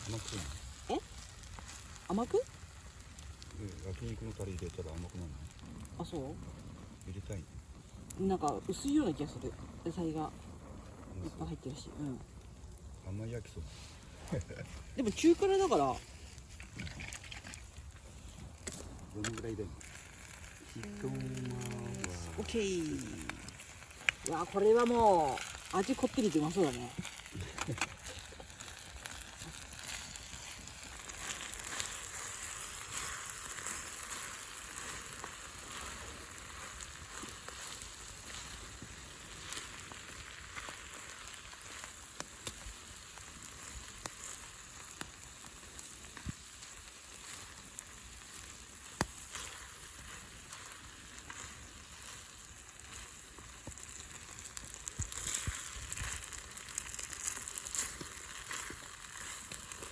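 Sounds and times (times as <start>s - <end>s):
noodles sizzling in a pan: 0.0s - 59.9s.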